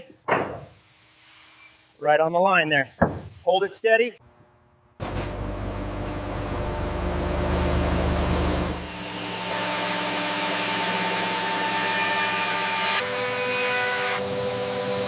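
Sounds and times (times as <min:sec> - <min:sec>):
heavy machinery rumbling: 0:05.0 - 0:09.0.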